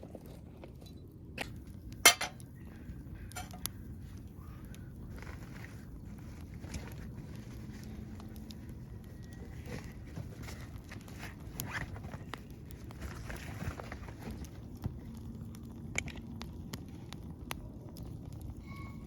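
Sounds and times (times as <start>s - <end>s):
wood fire crackling: 0.0s - 19.0s
rustling: 5.1s - 15.0s.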